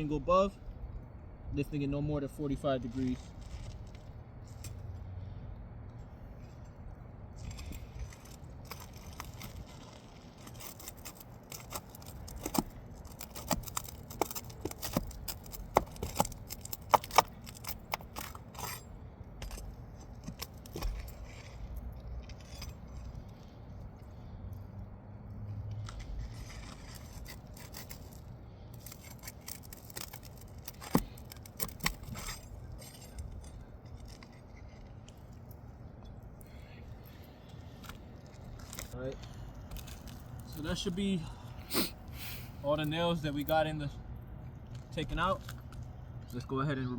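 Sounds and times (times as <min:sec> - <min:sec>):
pry bar clicking and scraping: 0:06.0 - 0:24.7, 0:25.3 - 0:40.9.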